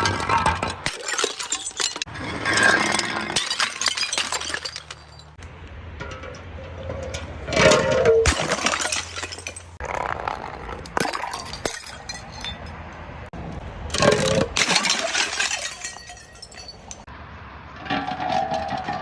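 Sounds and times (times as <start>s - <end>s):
glass bottles shattering: 0.0s - 5.4s, 7.6s - 9.8s, 11.0s - 12.7s, 13.9s - 17.1s
glass shards clinking: 0.0s - 5.4s, 8.2s - 9.8s, 14.0s - 17.1s.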